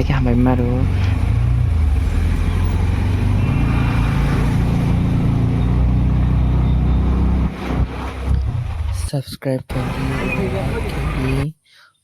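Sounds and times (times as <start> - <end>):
vehicle engine running: 0.0 - 9.0, 9.7 - 11.4
road noise: 0.0 - 9.1, 9.7 - 11.5.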